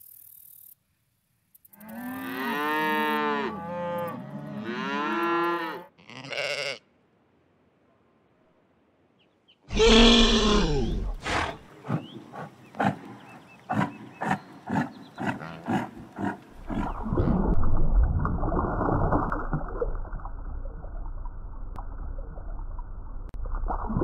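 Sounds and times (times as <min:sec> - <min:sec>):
large animal calling: 0:09.7 - 0:11.7
animal grunts: 0:09.7 - 0:17.2.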